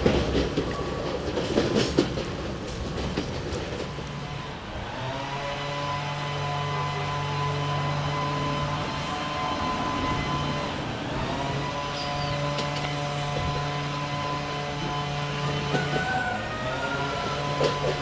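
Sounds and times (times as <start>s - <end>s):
knocks and clatter: 0.0s - 4.1s, 17.2s - 18.0s
railcar engine drone: 0.0s - 18.0s.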